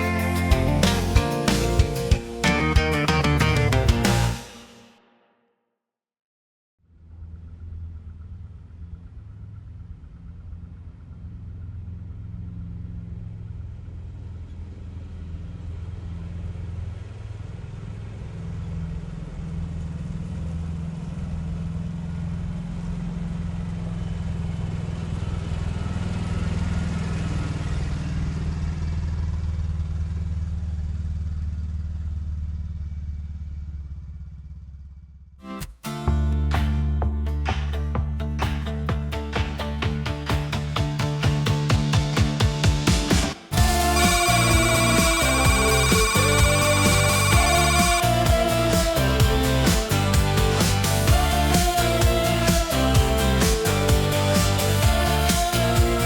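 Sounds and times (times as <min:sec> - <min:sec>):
atv engine running: 0:43.6 - 0:56.0.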